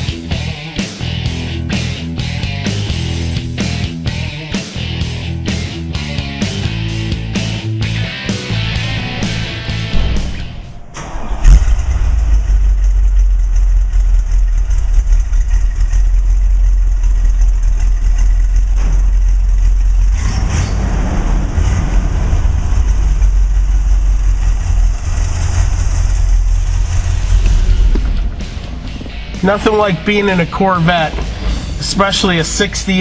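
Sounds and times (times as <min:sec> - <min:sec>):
car engine deep rumble: 0:00.0 - 0:33.0
loud thump: 0:08.3 - 0:14.9.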